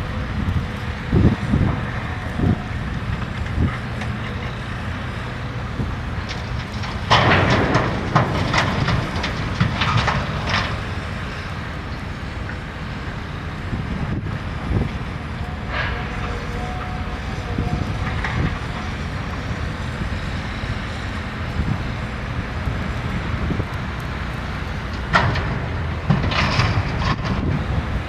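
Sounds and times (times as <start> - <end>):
diesel engine running: 0.0 - 28.0
metallic clanks and scrapes: 6.3 - 11.4, 25.1 - 27.5.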